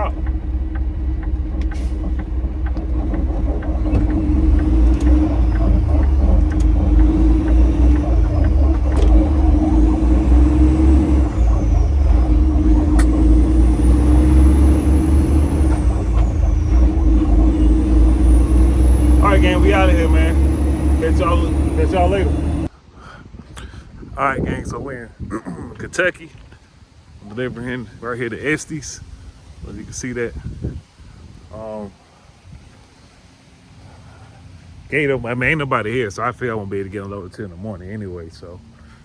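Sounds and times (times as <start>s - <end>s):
diesel truck engine under load: 0.0s - 22.8s
light ticks: 0.1s - 19.2s.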